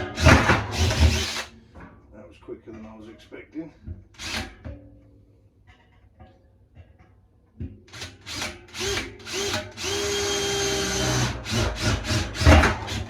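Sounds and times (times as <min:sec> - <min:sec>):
power drill drilling into metal: 0:00.0 - 0:01.6, 0:04.2 - 0:04.5, 0:07.9 - 0:13.0.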